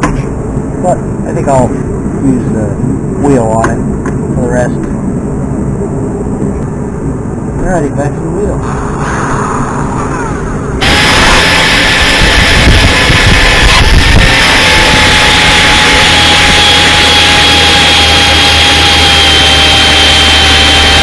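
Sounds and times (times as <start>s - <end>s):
grinder grinding metal: 10.8s - 21.0s.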